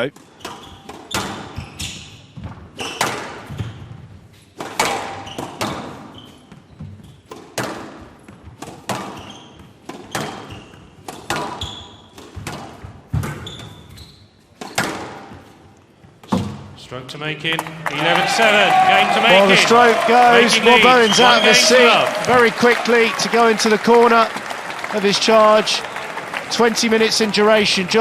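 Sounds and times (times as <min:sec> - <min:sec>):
squash ball hitting rackets and walls: 0:00.2 - 0:16.7
shoe squeaks: 0:00.3 - 0:04.5, 0:05.2 - 0:07.4, 0:09.1 - 0:12.2, 0:13.2 - 0:14.9.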